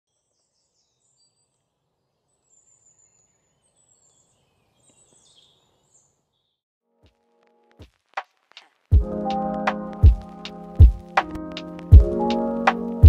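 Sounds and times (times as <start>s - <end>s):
birds chirping and trilling: 0.1s - 6.6s.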